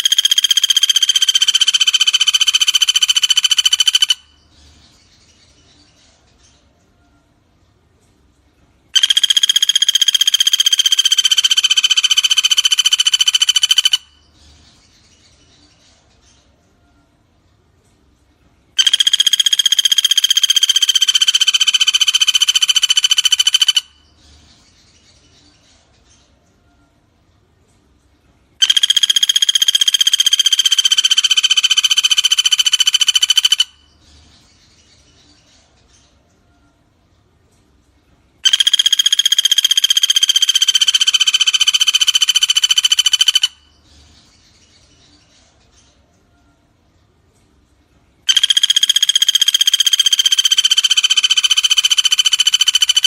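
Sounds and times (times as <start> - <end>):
woodpecker rattling trill: 0.0 - 4.5, 9.0 - 14.3, 18.8 - 24.1, 28.6 - 34.0, 38.4 - 43.8, 48.3 - 53.0.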